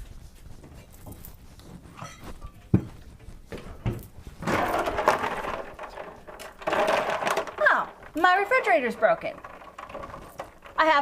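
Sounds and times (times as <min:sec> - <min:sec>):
rattling clatter: 0:04.4 - 0:11.0.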